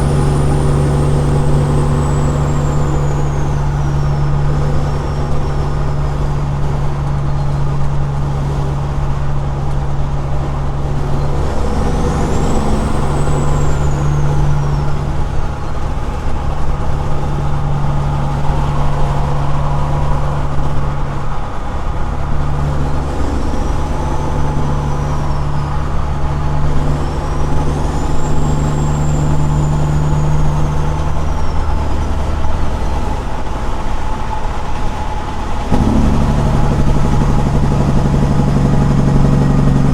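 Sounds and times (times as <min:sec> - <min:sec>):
faint high whistle: 0:00.0 - 0:06.1, 0:11.2 - 0:15.7
diesel truck engine drone: 0:00.0 - 0:39.9.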